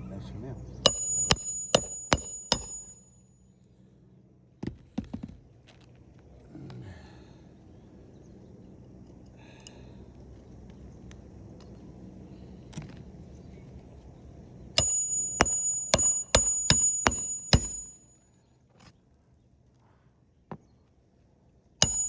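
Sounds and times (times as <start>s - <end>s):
hammer striking nail: 0.9s - 3.1s, 14.8s - 18.0s.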